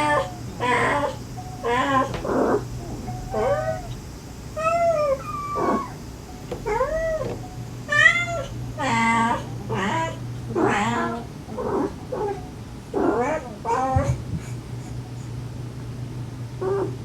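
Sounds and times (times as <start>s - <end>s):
mother cat calling softly: 0.0s - 4.0s
kittens mewing: 0.0s - 15.3s.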